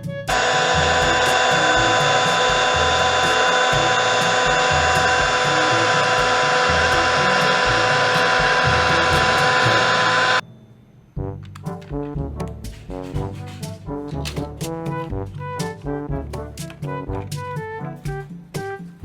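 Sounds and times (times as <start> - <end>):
background music with bass line: 0.0 - 10.4, 11.1 - 19.0
loud mechanical noise with tones: 0.3 - 11.0.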